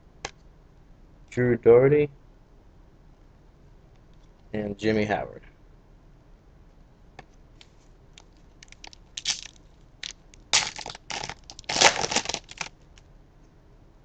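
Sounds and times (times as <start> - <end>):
foil wrapper crinkling: 7.6 - 13.0.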